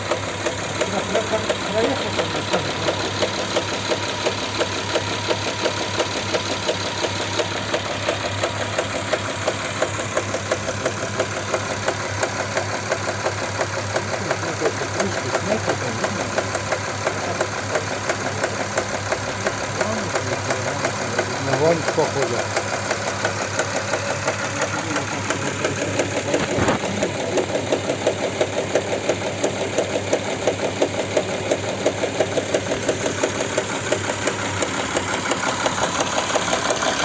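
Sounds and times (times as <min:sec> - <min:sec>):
car engine idling: 0:00.0 - 0:37.0
fast regular engine knocking: 0:00.0 - 0:37.0.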